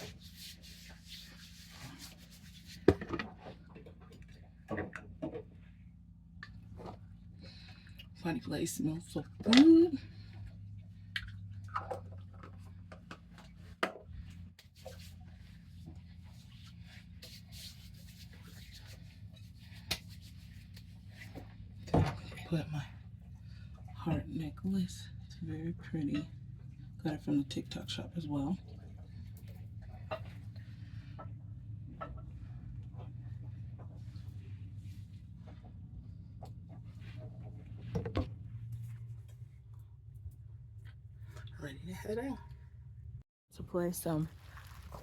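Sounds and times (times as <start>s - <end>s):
hands rubbing lotion on skin: 0.0s - 2.9s, 16.3s - 21.3s
steady low hum: 0.0s - 44.4s.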